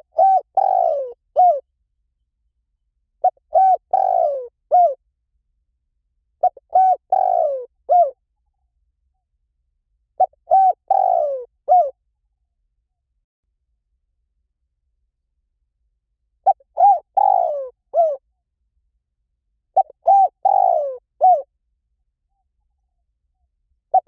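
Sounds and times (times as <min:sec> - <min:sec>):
dove cooing: 0:00.0 - 0:01.6, 0:03.2 - 0:05.0, 0:06.4 - 0:08.2, 0:10.2 - 0:12.0, 0:16.4 - 0:18.2, 0:19.8 - 0:21.5.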